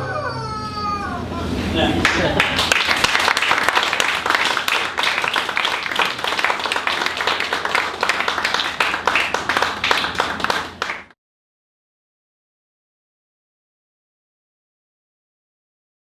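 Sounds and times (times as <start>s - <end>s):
audience applauding: 2.0s - 11.2s.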